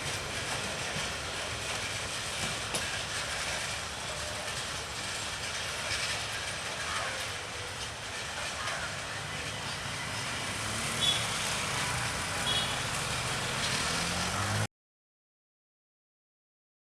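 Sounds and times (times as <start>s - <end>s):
train running: 0.0s - 14.7s
people's voices: 6.6s - 12.8s.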